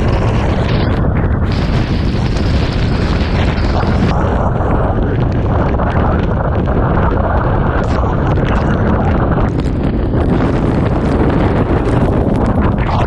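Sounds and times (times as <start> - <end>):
driving rain hissing: 0.0 - 5.8
wind battering microphone: 0.0 - 13.0.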